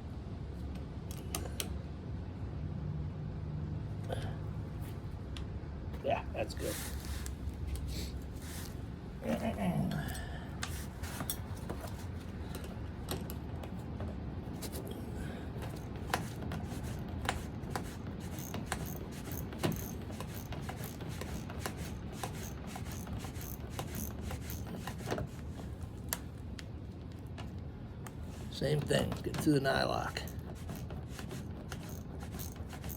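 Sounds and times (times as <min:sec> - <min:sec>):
wrenches clicking on metal: 0:15.6 - 0:25.1, 0:29.4 - 0:32.9.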